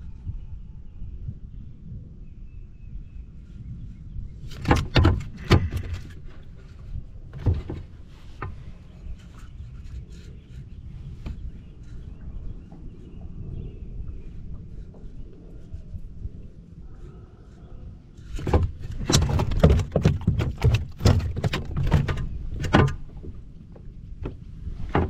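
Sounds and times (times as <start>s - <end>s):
wind rumble on microphone: 0.0s - 25.0s
knocks and rattles in kayak: 4.4s - 15.3s, 18.1s - 25.0s.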